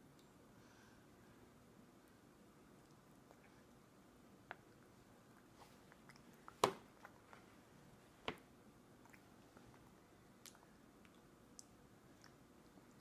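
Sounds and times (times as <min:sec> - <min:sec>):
toddler chewing wet fruit: 0:04.5 - 0:07.5, 0:08.9 - 0:13.0.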